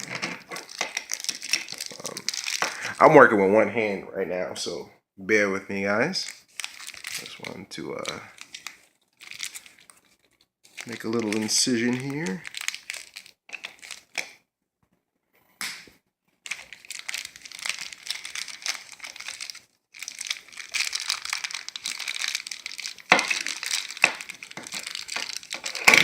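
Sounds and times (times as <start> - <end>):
packaging cracks: 0.0 - 3.0, 6.3 - 14.4, 16.4 - 26.0
packaging crinkling and tearing: 0.0 - 3.1, 6.2 - 14.4, 16.4 - 26.0.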